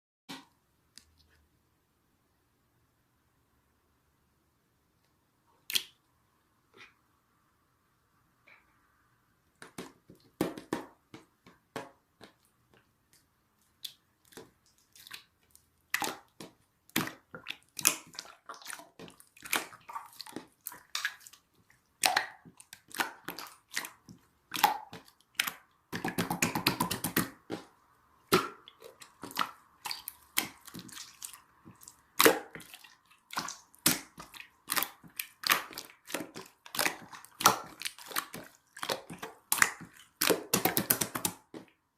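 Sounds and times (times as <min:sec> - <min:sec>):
squishing jelly-like material: 0:05.6 - 0:06.1, 0:09.5 - 0:41.9.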